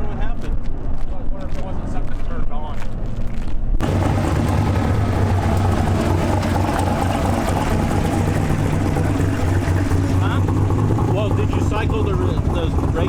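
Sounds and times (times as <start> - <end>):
drag car engine idling: 3.8 - 13.0.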